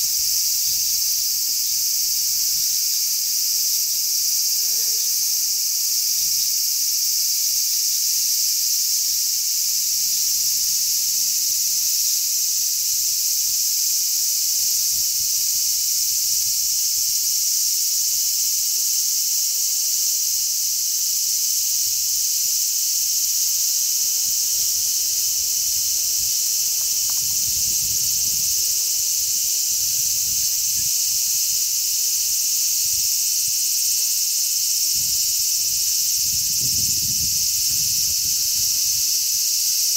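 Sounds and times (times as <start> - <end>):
cicadas buzzing: 0.0 - 39.9
faint wind rumble: 35.0 - 39.0.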